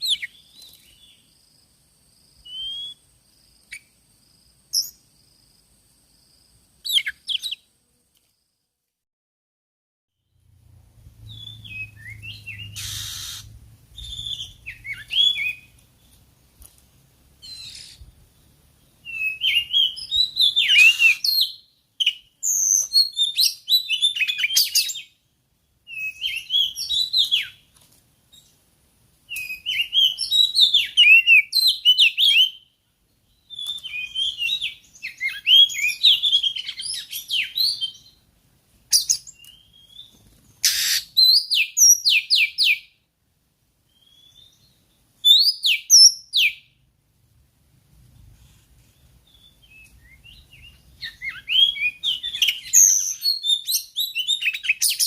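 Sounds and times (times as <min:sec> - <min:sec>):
bird whistles and chirps: 0:00.0 - 0:01.2, 0:02.4 - 0:03.0, 0:04.7 - 0:05.0, 0:06.9 - 0:07.6, 0:11.2 - 0:15.8, 0:17.4 - 0:18.1, 0:19.0 - 0:25.2, 0:25.9 - 0:27.6, 0:29.3 - 0:32.7, 0:33.4 - 0:38.2, 0:38.9 - 0:42.9, 0:43.9 - 0:46.7, 0:49.2 - 0:55.0.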